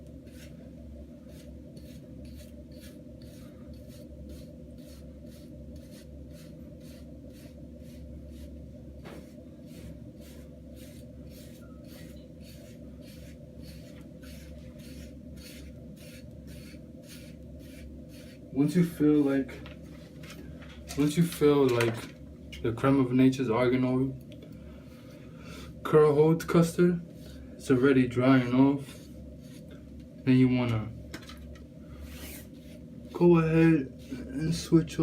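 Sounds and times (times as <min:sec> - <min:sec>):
brush scratching over short hair: 0:00.0 - 0:00.6, 0:01.2 - 0:20.1, 0:27.1 - 0:29.8, 0:32.0 - 0:35.0.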